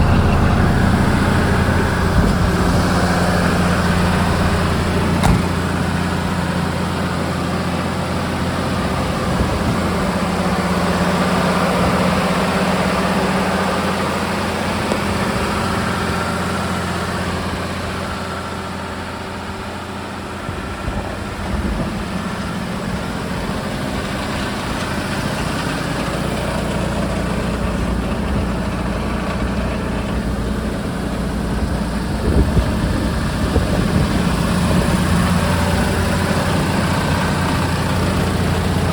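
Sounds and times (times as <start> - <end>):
diesel engine idling: 0.0 - 38.9
short knocks: 5.1 - 5.8.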